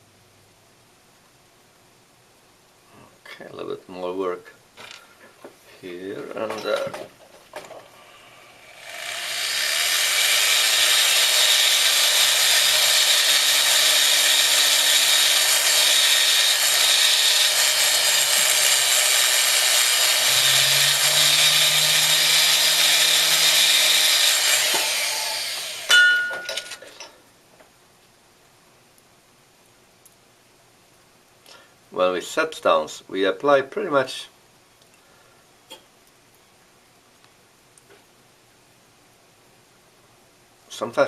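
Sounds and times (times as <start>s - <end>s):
rotary tool grinding hiss: 7.9s - 26.0s
sharp metal clink: 25.9s - 26.8s.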